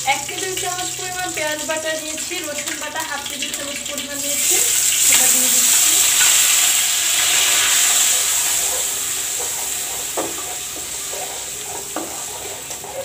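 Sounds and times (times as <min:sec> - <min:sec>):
paste sizzling in hot oil: 0:00.0 - 0:13.0
metal spatula scraping a pan: 0:07.1 - 0:13.0.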